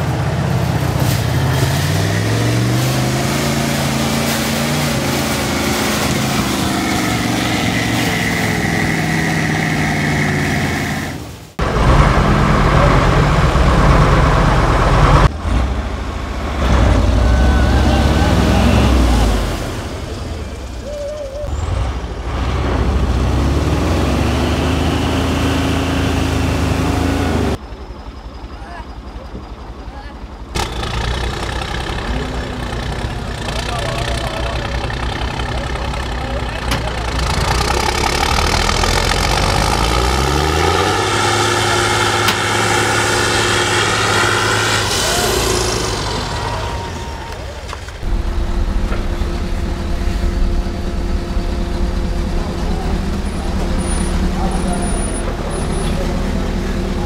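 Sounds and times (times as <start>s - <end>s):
truck engine revving under load: 0.0s - 27.6s, 30.4s - 57.0s
steady whine: 41.0s - 57.0s.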